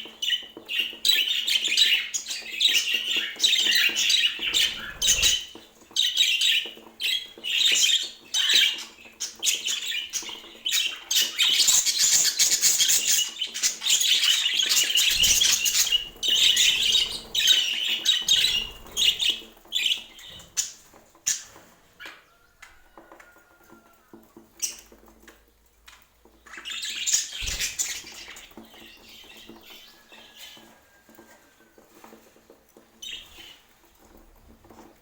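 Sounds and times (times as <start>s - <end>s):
budgerigars chattering: 9.6s - 19.4s.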